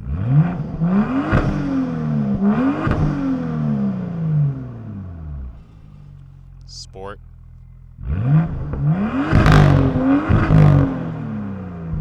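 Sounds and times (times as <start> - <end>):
car engine revving: 7.3 - 12.0.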